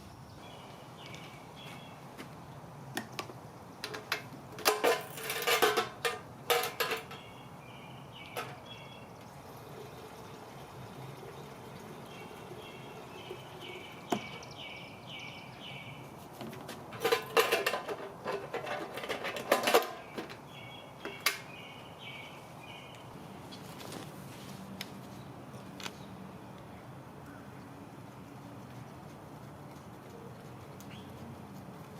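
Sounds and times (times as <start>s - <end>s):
bird chirping: 0.0s - 2.1s, 7.0s - 16.1s, 20.0s - 23.6s
hard objects clattering: 3.8s - 7.3s, 16.4s - 20.4s.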